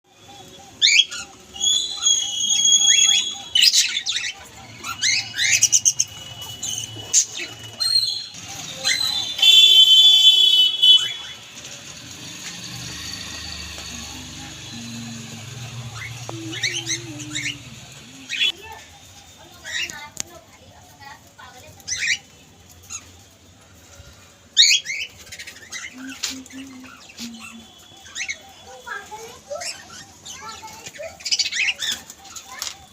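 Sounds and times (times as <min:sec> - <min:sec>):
parrot chirping: 0:00.4 - 0:18.8
parrot whistling: 0:01.0 - 0:03.7.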